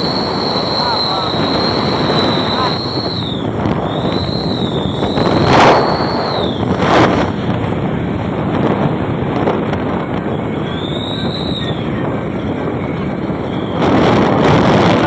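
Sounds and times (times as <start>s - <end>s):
high wavering exhaust whistle: 0.0s - 6.8s, 10.4s - 11.9s.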